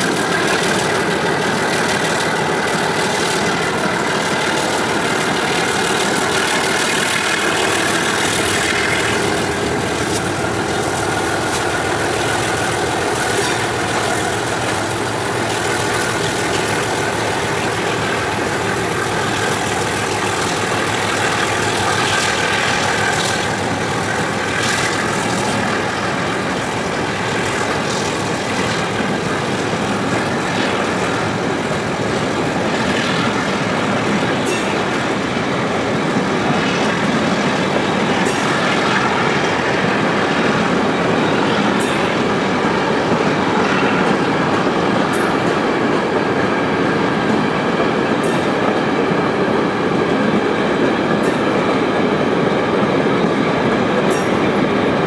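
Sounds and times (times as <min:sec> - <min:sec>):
train wheels clattering on rail: 0:00.0 - 0:55.0.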